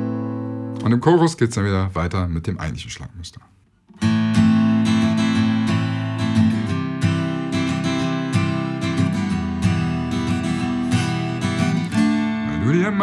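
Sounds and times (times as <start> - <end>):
acoustic guitar strumming chords: 0.0 - 1.0, 3.9 - 13.0.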